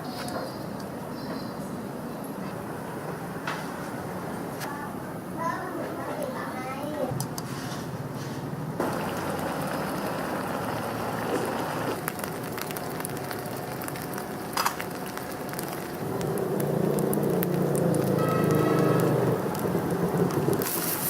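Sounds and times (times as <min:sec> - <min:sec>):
food sizzling in a wok: 0:08.8 - 0:21.0.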